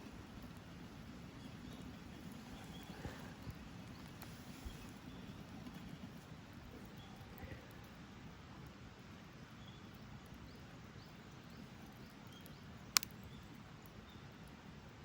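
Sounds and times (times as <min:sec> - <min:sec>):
fire popping: 0:00.0 - 0:14.6
campfire crackling: 0:00.0 - 0:15.0.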